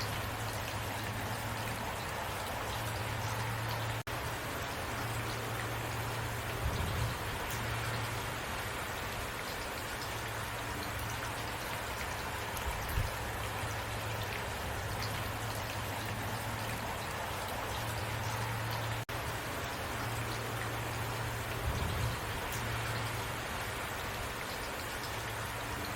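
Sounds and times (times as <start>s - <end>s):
heavy rain falling: 0.0s - 25.9s.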